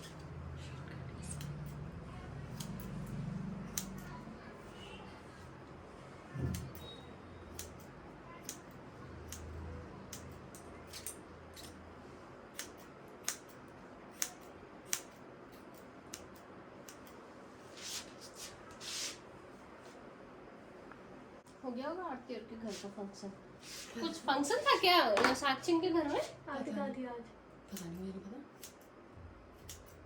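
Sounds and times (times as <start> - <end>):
scissors snipping hair: 0.0 - 0.3, 1.2 - 1.8, 2.5 - 4.2, 6.4 - 11.8, 12.5 - 17.2, 27.7 - 28.9, 29.6 - 30.0.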